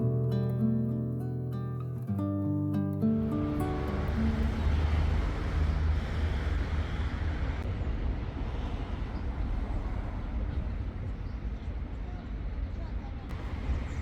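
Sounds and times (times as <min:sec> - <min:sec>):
low rumble: 0:03.2 - 0:14.0.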